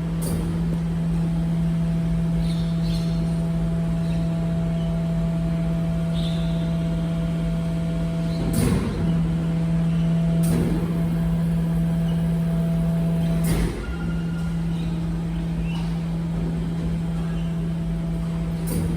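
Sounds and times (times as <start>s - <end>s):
garbage truck engine hum: 0.0s - 18.9s.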